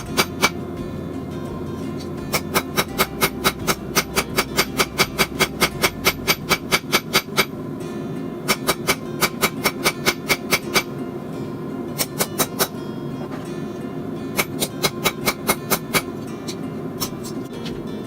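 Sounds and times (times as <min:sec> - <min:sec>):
hammer striking metal on anvil: 0:02.0 - 0:07.6, 0:08.5 - 0:10.9, 0:12.0 - 0:12.8, 0:14.4 - 0:17.3.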